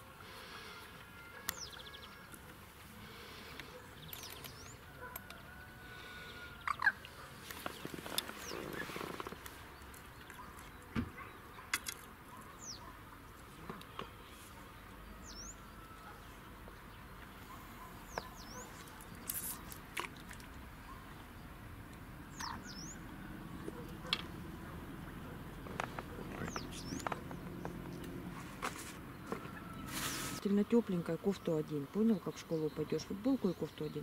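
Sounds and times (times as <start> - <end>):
bird chirping: 1.3 - 2.4, 7.6 - 13.0, 15.2 - 19.7, 22.3 - 28.2.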